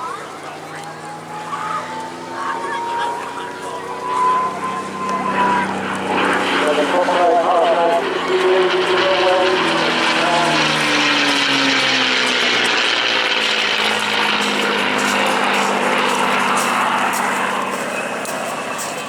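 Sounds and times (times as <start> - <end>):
propeller plane engine fly-by: 0.0 - 19.0.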